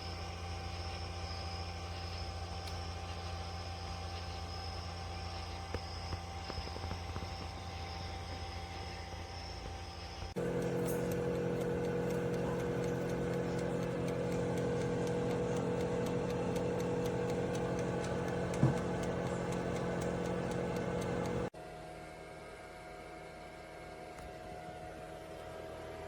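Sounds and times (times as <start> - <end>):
toaster oven humming: 0.0 - 21.5
toaster oven click: 10.4 - 21.5.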